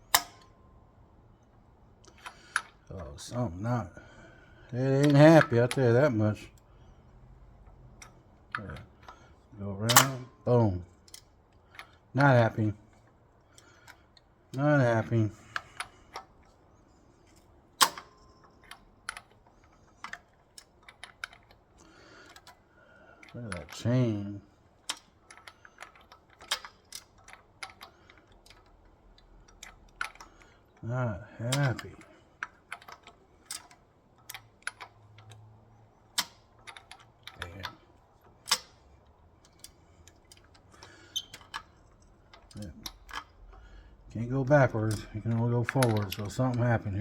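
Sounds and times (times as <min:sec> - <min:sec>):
metallic clicks: 0:00.0 - 0:00.6, 0:07.6 - 0:30.9, 0:31.5 - 0:47.0
man talking: 0:02.9 - 0:04.1, 0:04.7 - 0:06.6, 0:08.5 - 0:08.9, 0:09.5 - 0:10.9, 0:12.1 - 0:12.8, 0:14.5 - 0:15.4, 0:23.3 - 0:24.4, 0:30.8 - 0:32.0, 0:37.4 - 0:37.8, 0:42.6 - 0:42.9, 0:44.1 - 0:47.0.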